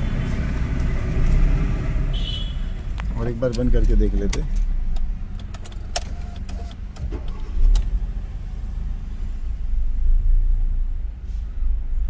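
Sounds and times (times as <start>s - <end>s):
car engine idling: 0.0s - 11.2s.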